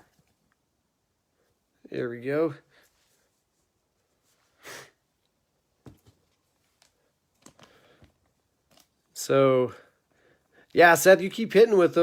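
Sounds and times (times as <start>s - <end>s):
person sniffing: 4.5s - 5.0s.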